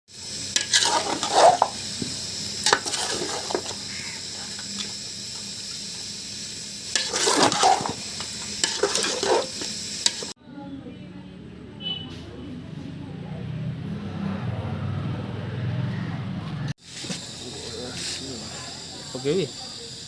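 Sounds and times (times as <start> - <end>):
food sizzling in a hot pan: 0.1 - 10.4, 16.8 - 20.0
spatula scraping a pan: 0.5 - 6.1, 6.9 - 10.4.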